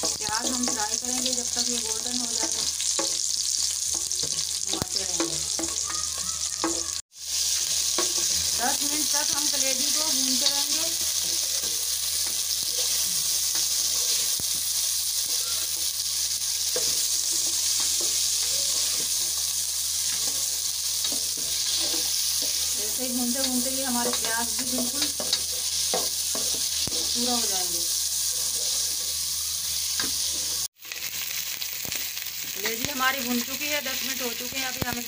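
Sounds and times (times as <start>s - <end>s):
food sizzling in hot oil: 0.0s - 35.0s
wooden spoon scraping a pot: 20.0s - 27.2s.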